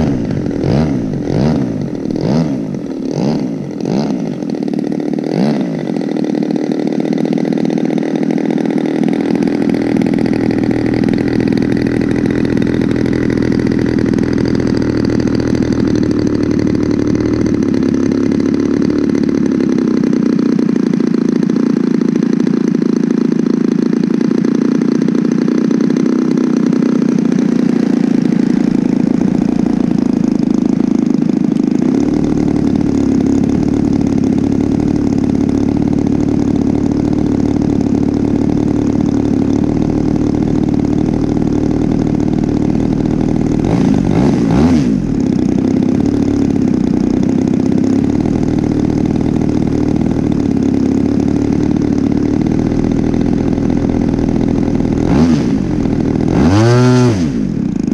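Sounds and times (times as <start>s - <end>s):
model plane engine flying by: 0.0s - 48.2s.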